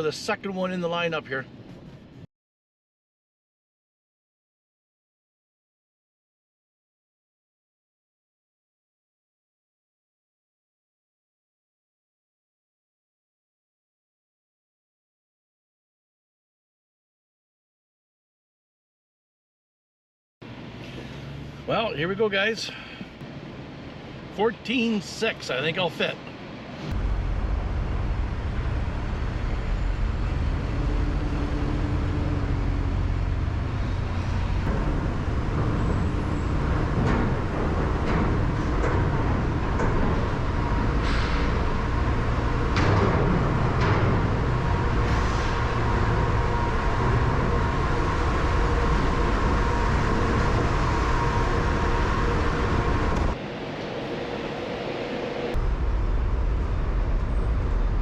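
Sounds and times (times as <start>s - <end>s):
truck engine and road rumble: 0.0s - 2.3s, 20.4s - 58.0s
knocks and rattles: 30.7s - 46.3s.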